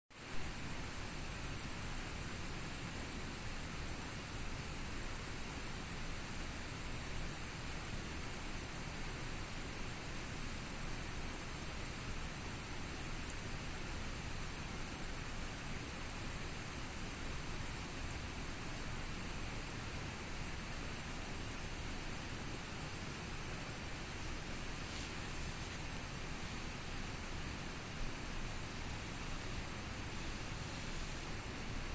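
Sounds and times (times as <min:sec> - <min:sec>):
campfire hissing: 0:19.8 - 0:31.9.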